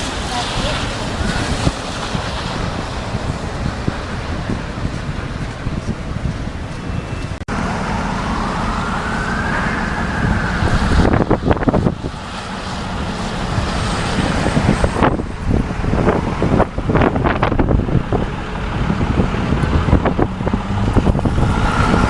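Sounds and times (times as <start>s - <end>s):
wind buffeting microphone: 0.0s - 22.0s
emergency vehicle siren wailing: 7.0s - 22.0s.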